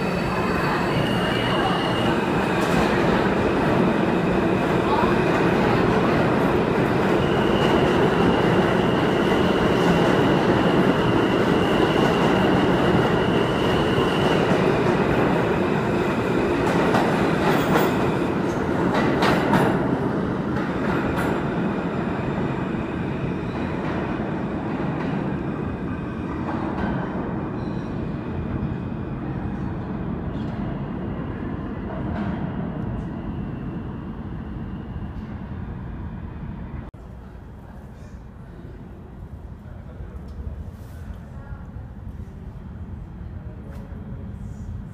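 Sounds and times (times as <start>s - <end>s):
subway train motor and wheels: 0.0s - 44.9s.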